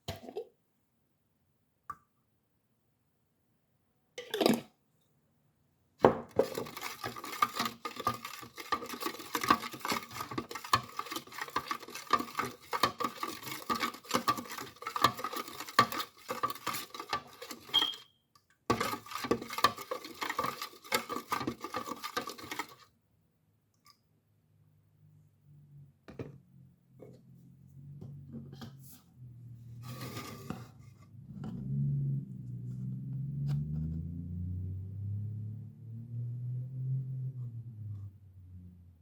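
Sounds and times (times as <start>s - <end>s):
utensils clattering against a dish: 6.4s - 18.0s, 18.7s - 22.8s.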